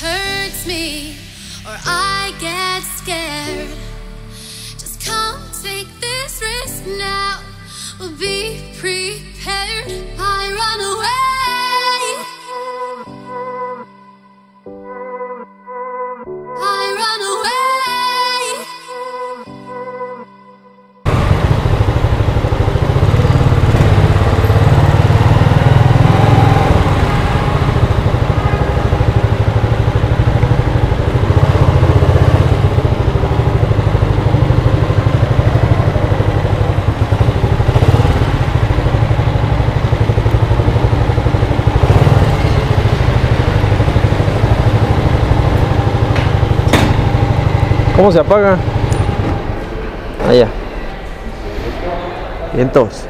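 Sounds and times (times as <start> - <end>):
motorcycle engine low rumble: 21.1 - 51.3.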